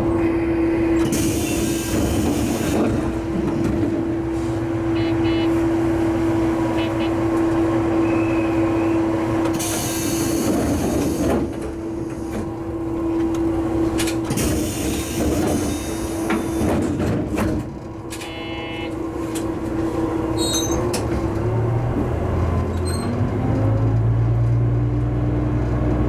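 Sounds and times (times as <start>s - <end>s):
railcar engine hum: 0.0s - 26.0s
wheels rumbling on rail: 0.0s - 26.0s
wheel squeals: 20.4s - 21.0s.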